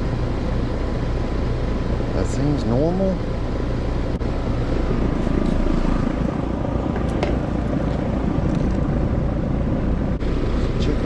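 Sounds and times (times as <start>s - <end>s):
heat pump compressor droning: 0.0s - 11.0s
low hum: 0.0s - 11.0s.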